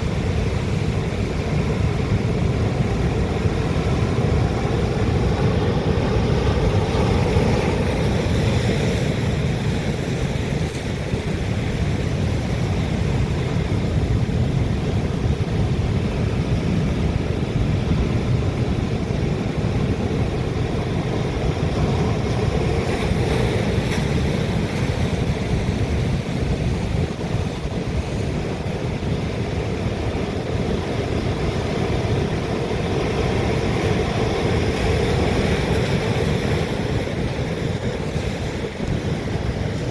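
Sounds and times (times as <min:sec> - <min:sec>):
wind buffeting microphone: 0:00.0 - 0:39.9
sea waves breaking on rocks: 0:17.5 - 0:39.9.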